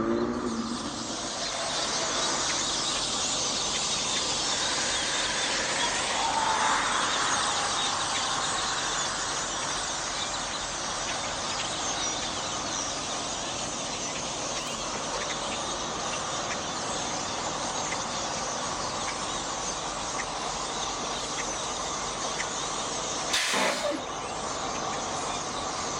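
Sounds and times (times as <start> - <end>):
flock of birds chirping: 0.0 - 25.9
short loud noise: 23.3 - 24.1.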